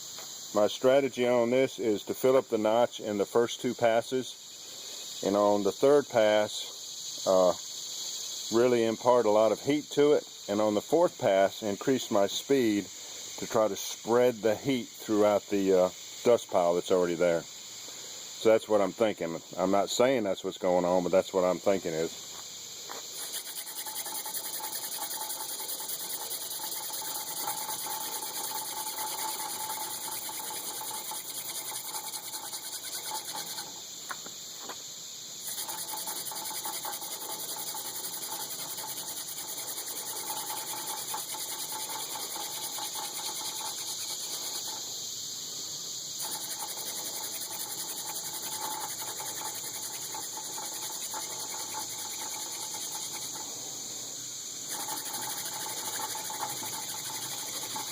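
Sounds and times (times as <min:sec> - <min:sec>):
hand drill friction rasp: 0:23.2 - 0:33.7, 0:35.4 - 0:44.7, 0:46.2 - 0:53.4, 0:54.7 - 0:57.9.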